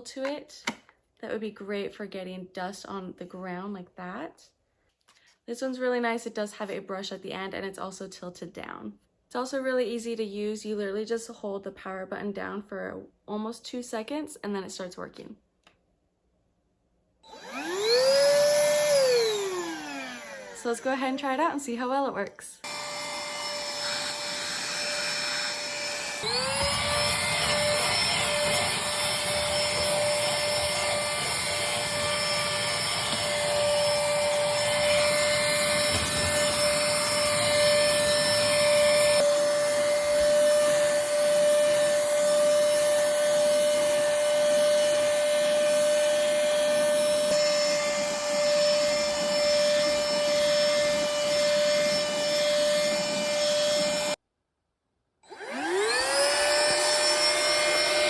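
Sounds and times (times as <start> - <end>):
handheld vacuum whining: 17.2 - 54.2, 55.2 - 58.0.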